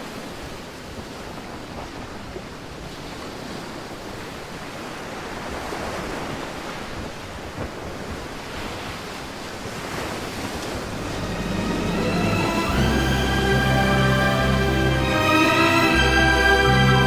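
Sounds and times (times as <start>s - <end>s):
rushing water: 0.0s - 17.0s
wind: 0.0s - 17.0s
wind buffeting microphone: 0.1s - 11.3s.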